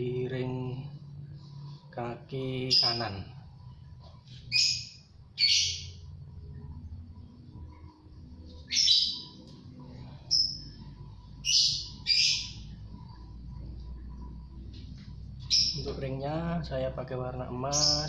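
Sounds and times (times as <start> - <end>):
low steady background hum: 0.0 - 18.0
birds giving harsh raspy calls: 4.5 - 6.0, 11.4 - 12.7.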